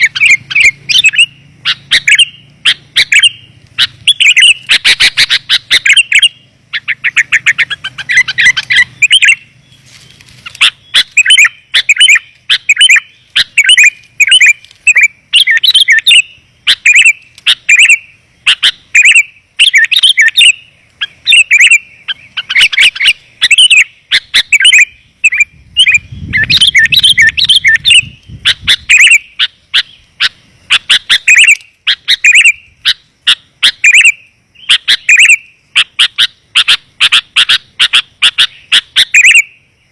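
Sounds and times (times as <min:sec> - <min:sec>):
bulbul chirping and trilling: 0:00.0 - 0:39.9.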